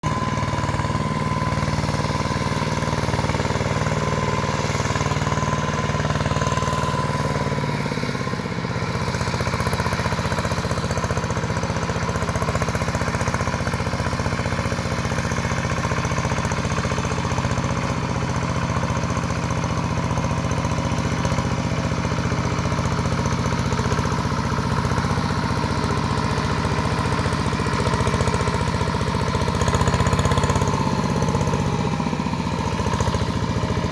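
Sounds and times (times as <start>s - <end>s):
hand tractor engine running: 0.0s - 33.9s.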